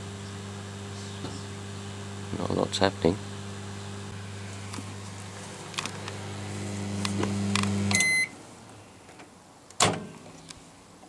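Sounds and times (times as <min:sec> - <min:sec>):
microwave oven humming: 0:00.0 - 0:08.9.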